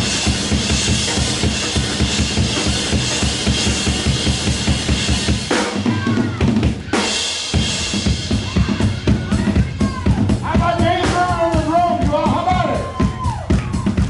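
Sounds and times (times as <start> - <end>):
kick and snare drum beat: 0.0 - 14.0
live band playing: 0.0 - 14.0.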